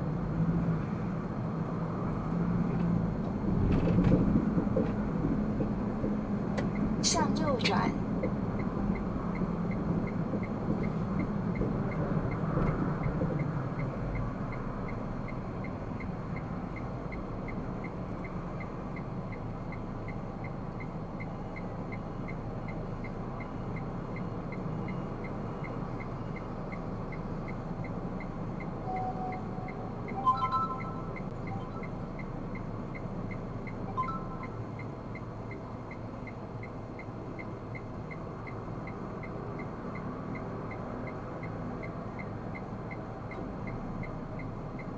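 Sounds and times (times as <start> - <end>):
car interior road noise: 0.0 - 44.9
chime of stacked tones: 28.9 - 31.9, 33.9 - 34.6.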